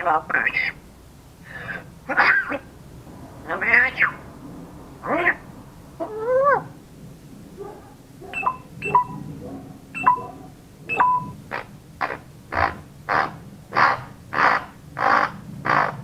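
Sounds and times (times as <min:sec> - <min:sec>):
parrot squawking: 0:00.3 - 0:00.8, 0:02.1 - 0:02.7, 0:03.5 - 0:04.2, 0:05.0 - 0:05.4, 0:10.0 - 0:16.0
parrot beep-like notes: 0:08.4 - 0:09.3, 0:10.0 - 0:11.4.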